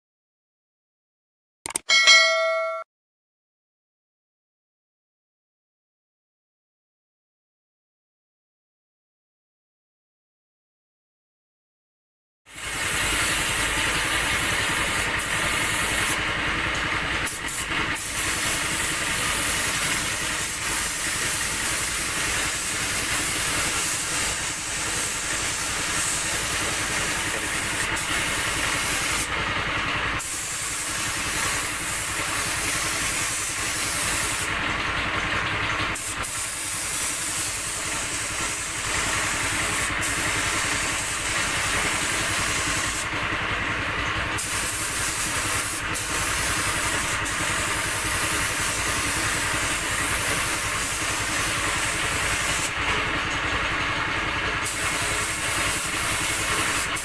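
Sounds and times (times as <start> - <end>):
air compressor humming: 12.6 - 57.0
spray gun hissing: 18.0 - 29.3, 30.2 - 34.4, 36.0 - 43.0, 44.4 - 52.7, 54.6 - 57.0.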